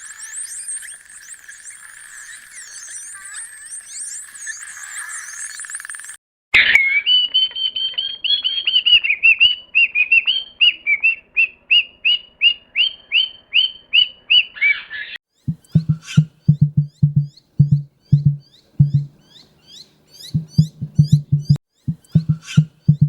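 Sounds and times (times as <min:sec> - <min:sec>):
bird chirping: 0:11.4 - 0:23.0.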